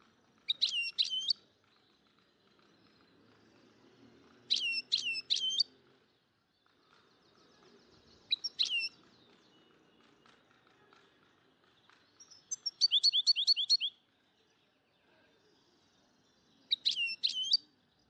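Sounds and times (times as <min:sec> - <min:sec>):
bird chirping: 0:00.5 - 0:03.7, 0:04.4 - 0:05.8, 0:06.6 - 0:10.4, 0:11.7 - 0:18.0.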